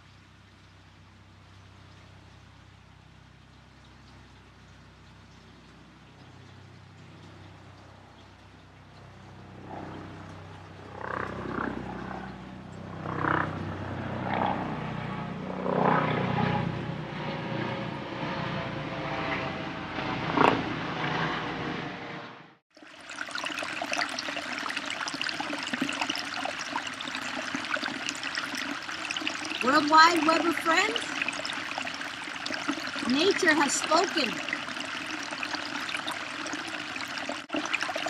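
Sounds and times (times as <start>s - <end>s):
low droning hum: 0.6s - 22.6s
running water rushing: 22.7s - 38.0s.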